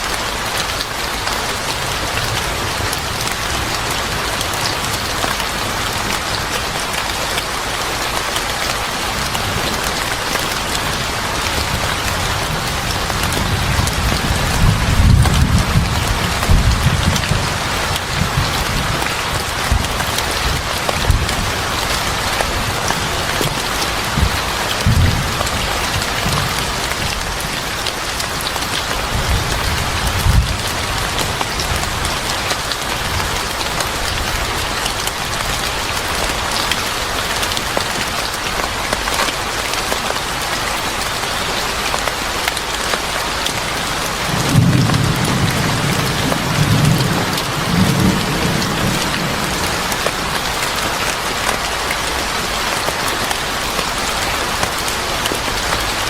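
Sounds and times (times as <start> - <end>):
heavy rain: 0.0 - 56.0
thunder rumbling: 11.1 - 27.7, 44.3 - 50.5.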